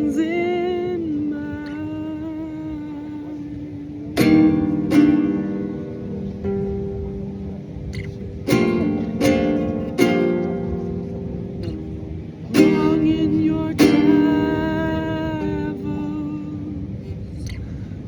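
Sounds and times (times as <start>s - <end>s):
wavering sustained guitar note: 0.0s - 17.9s
acoustic guitar chords ringing: 0.0s - 18.0s.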